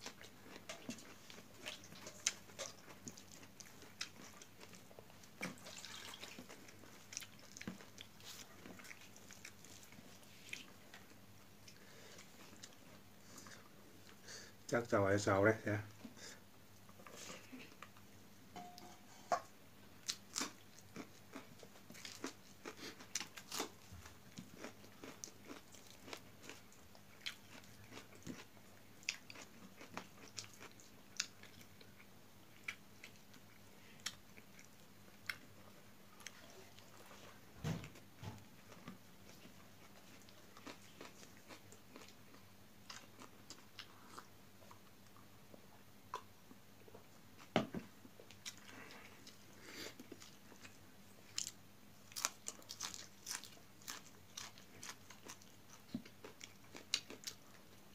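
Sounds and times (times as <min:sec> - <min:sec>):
chewing and crunching food: 0:00.0 - 0:14.2, 0:19.9 - 0:57.9.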